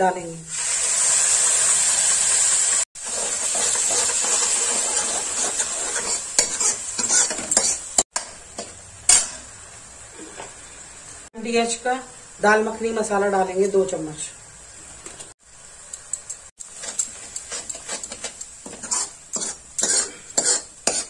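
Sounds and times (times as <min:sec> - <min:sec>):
tomato puree sizzling in oil: 0:00.5 - 0:21.0
ladle scraping against pan: 0:03.8 - 0:08.0, 0:16.6 - 0:21.0.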